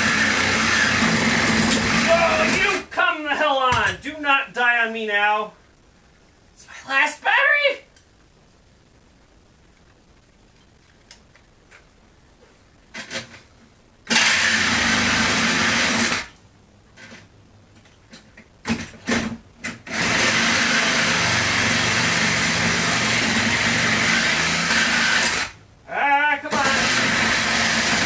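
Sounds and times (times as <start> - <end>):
power tool cutting metal: 0.0 - 2.7, 14.1 - 16.3, 19.9 - 25.6, 26.5 - 28.0.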